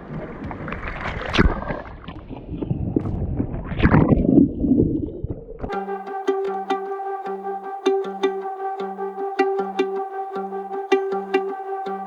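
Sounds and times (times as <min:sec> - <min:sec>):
wind buffeting microphone: 0:00.0 - 0:05.7
music: 0:05.7 - 0:12.0.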